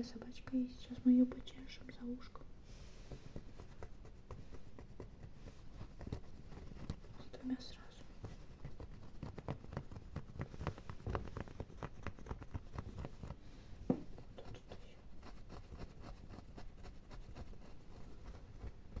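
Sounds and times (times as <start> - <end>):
fingernails scratching a toy: 3.1 - 13.4, 14.2 - 19.0.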